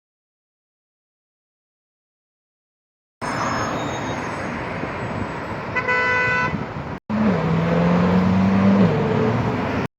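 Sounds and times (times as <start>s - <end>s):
street traffic noise: 3.2s - 9.9s
car horn: 5.7s - 6.7s.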